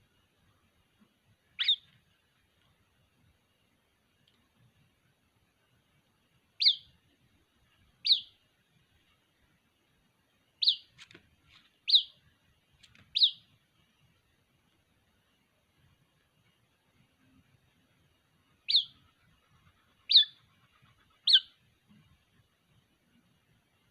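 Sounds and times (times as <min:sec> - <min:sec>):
bird chick peeping: 0:01.5 - 0:02.0, 0:06.6 - 0:07.0, 0:08.0 - 0:08.4, 0:10.6 - 0:12.2, 0:12.8 - 0:13.6, 0:18.6 - 0:21.6.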